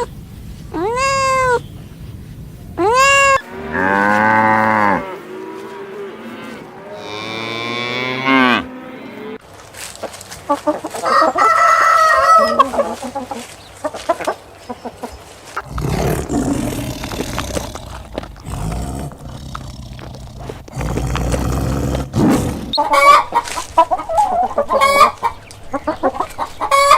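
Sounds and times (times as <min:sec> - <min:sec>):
chickens clucking: 0:00.0 - 0:04.2, 0:10.4 - 0:21.0, 0:22.4 - 0:26.9
cattle mooing: 0:02.9 - 0:09.4, 0:15.6 - 0:22.8.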